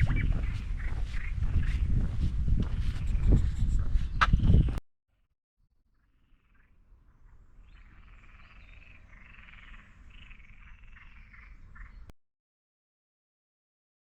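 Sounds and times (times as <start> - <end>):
frogs croaking: 5.9 - 12.1.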